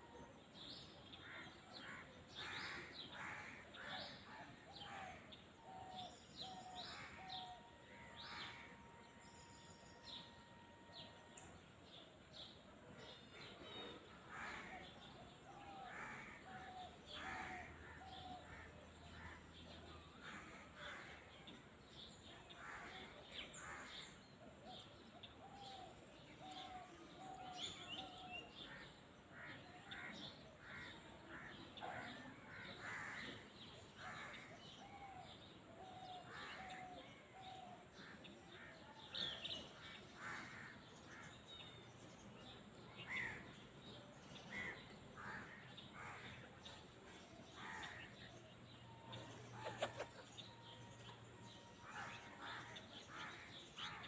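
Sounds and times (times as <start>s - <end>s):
clear evenly spaced bird notes: 0.0s - 32.7s, 33.3s - 54.0s.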